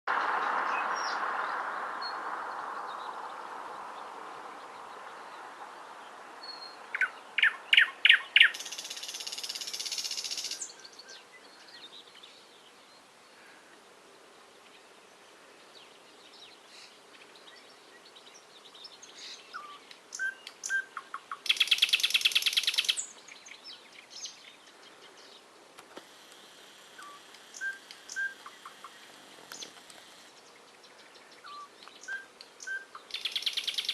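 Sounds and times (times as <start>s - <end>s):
songbird buzzy trill: 6.6s - 11.6s, 18.2s - 24.8s, 26.2s - 33.9s
soft bird chirps: 15.6s - 25.5s, 26.9s - 33.9s
hiss: 25.8s - 30.4s.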